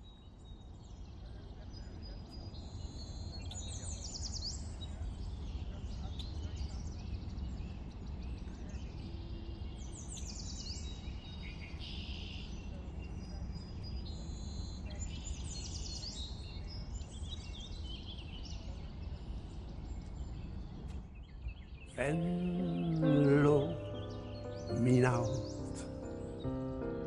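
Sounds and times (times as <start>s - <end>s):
birds chirping: 21.9s - 27.0s.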